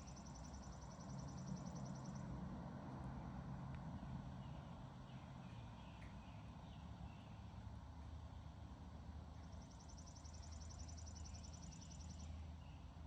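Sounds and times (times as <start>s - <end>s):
songbird rapid trill: 9.5s - 12.4s.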